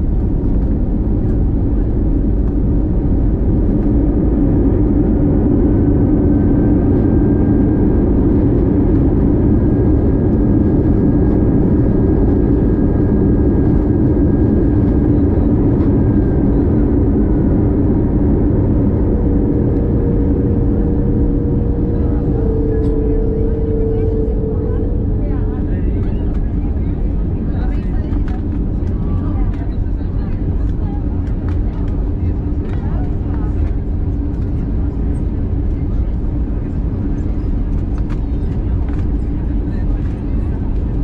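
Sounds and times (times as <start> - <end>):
airplane cabin engine and airflow noise: 0.0 - 41.0
steady tone: 17.2 - 27.4.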